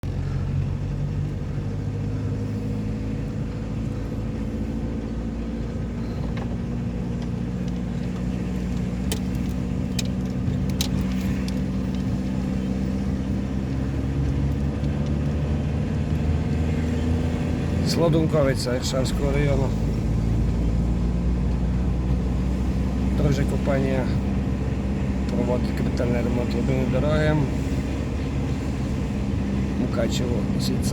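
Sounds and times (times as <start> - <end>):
vehicle engine running: 0.0 - 30.9
sharp clicks: 7.1 - 12.2.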